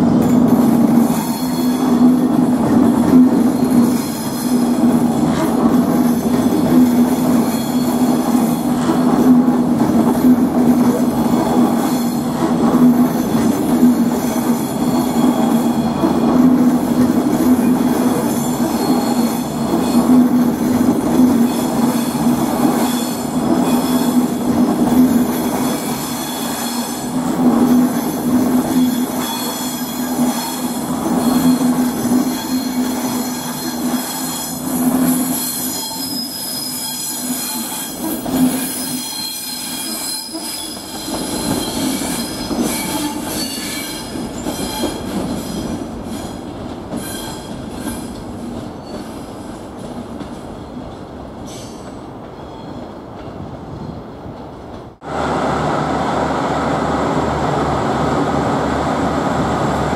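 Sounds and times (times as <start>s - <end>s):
high wheel squeal: 17.9s - 20.2s, 25.6s - 27.2s, 28.2s - 48.2s
electric train humming: 55.0s - 59.9s.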